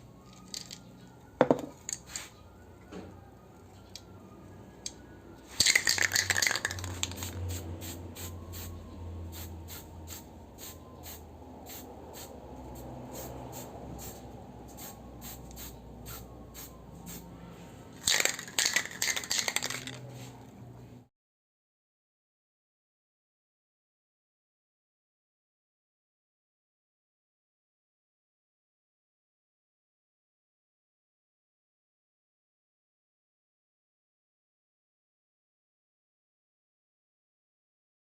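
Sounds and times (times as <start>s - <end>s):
spray can mixing ball rattling: 5.5s - 8.0s, 18.0s - 20.1s.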